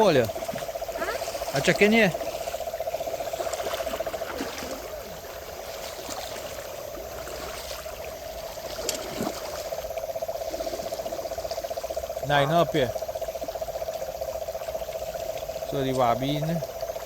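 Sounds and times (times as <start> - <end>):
animal fast-pulsing trill: 0.0 - 5.5
small splashes: 0.0 - 14.0
river water trickling: 0.0 - 17.0.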